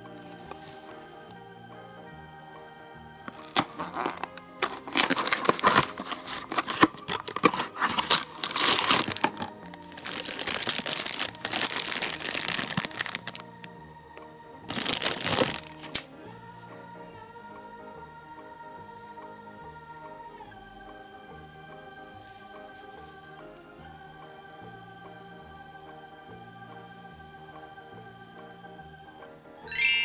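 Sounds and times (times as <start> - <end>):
quiet background music: 0.0 - 30.0
plastic packaging crinkling and tearing: 3.4 - 13.4, 14.7 - 16.1.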